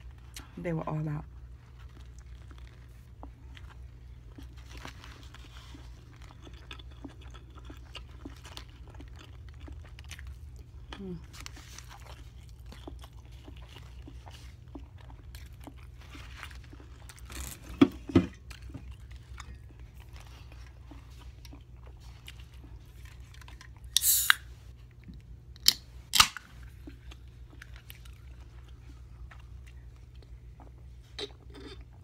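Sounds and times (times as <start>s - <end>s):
chewing with mouth clicks: 1.6s - 24.0s, 26.6s - 32.0s
short hiss: 24.0s - 24.4s.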